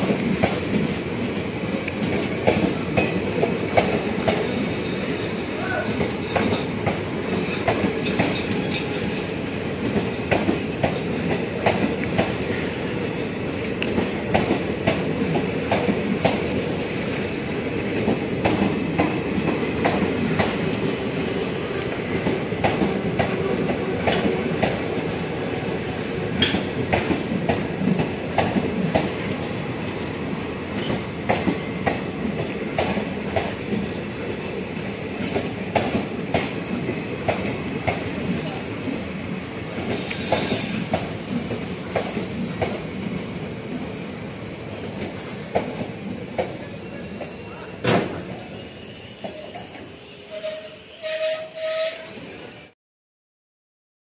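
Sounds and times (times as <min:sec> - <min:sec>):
continuous train rumble: 0:00.0 - 0:52.7
train wheels clattering over rail joints: 0:06.0 - 0:12.8, 0:26.3 - 0:29.3, 0:39.7 - 0:42.8.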